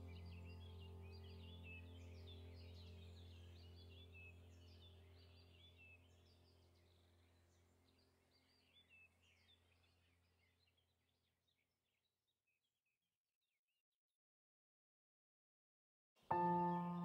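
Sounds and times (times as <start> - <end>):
small birds chirping: 0.0 - 11.7, 16.3 - 17.0.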